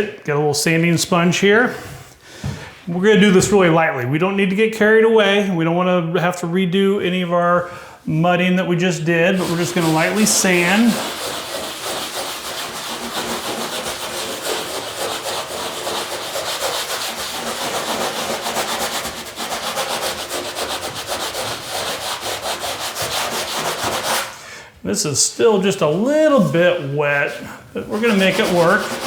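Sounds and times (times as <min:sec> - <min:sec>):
sanding sponge rubbing drywall: 0:08.9 - 0:24.6, 0:25.5 - 0:29.0.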